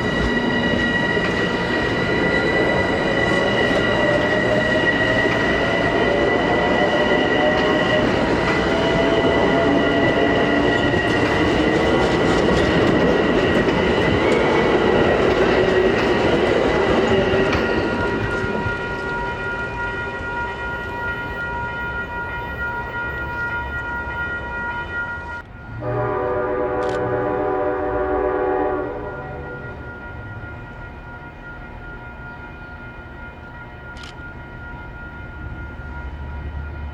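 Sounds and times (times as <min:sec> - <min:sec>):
train wheels rolling and clattering: 0:00.0 - 0:25.8
multi-tone train horn: 0:02.7 - 0:16.0, 0:25.4 - 0:30.2.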